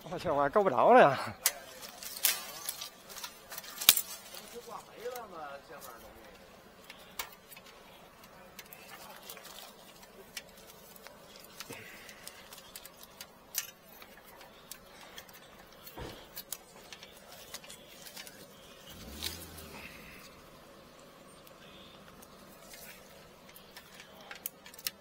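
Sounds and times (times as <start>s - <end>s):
hands clicking and tapping tools: 6.3s - 20.3s, 21.4s - 25.0s.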